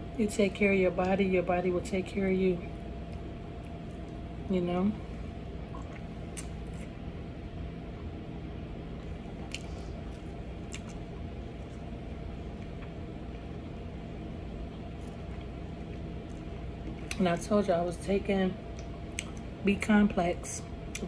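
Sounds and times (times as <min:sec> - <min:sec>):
steady low hum: 0:00.0 - 0:21.0
person chewing food: 0:09.0 - 0:13.7.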